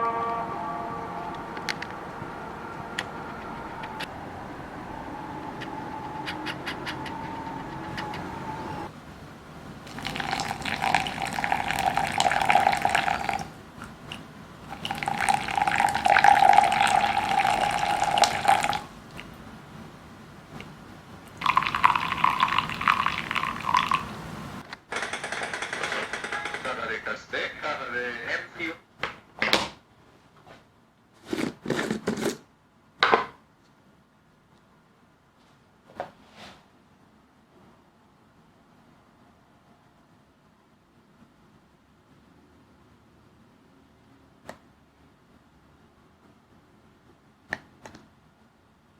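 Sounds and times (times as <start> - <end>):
water running from a tap: 9.9 - 13.5, 14.7 - 18.9, 21.4 - 24.1
scraping handling noises: 30.4 - 32.5.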